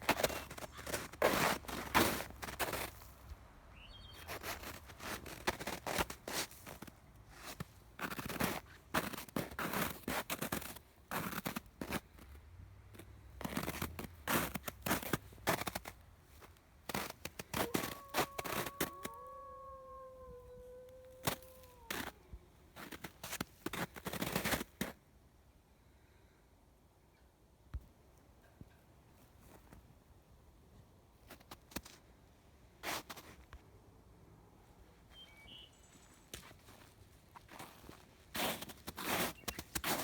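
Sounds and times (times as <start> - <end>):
footsteps crunching through snow: 0.0 - 3.2, 4.1 - 12.3, 12.9 - 19.6, 20.4 - 22.2, 22.8 - 24.9, 36.2 - 40.0.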